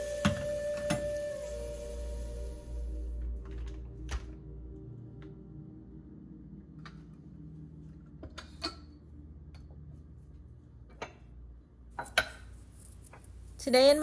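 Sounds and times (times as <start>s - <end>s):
dishes and utensils clinking: 12.0s - 13.4s.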